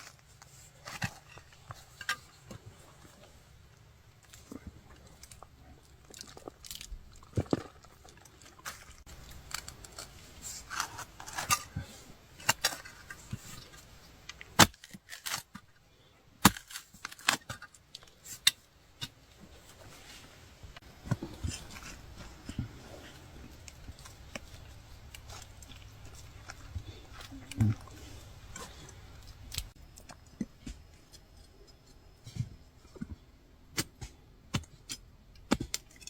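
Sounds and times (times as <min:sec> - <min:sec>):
digging tool striking earth: 0:14.5 - 0:15.6, 0:16.4 - 0:17.6, 0:33.7 - 0:35.9.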